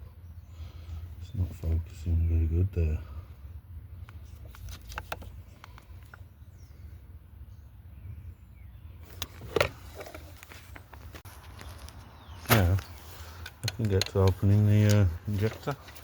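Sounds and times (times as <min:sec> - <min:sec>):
clicks and taps of engine parts: 0:04.0 - 0:06.2, 0:09.1 - 0:16.0
faint bird chirps: 0:05.4 - 0:09.3.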